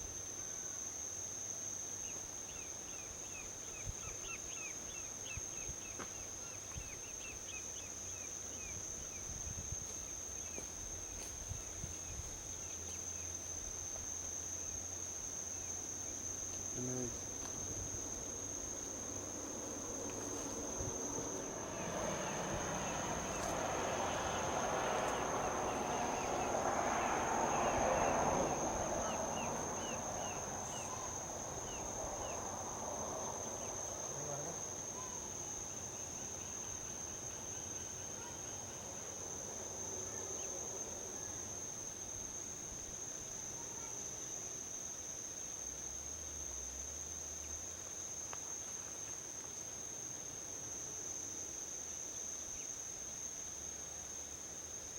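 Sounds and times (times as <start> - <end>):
vehicle passing on highway: 17.2 - 37.3.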